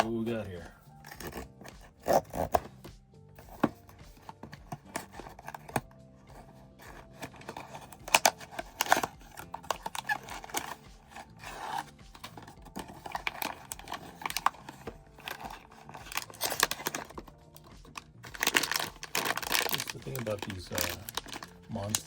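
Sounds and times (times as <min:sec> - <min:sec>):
packaging tearing and crinkling: 0:06.9 - 0:22.0.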